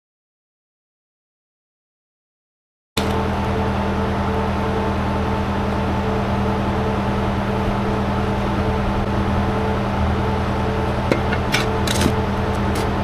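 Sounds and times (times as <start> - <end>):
engine humming steadily: 3.0 - 13.0.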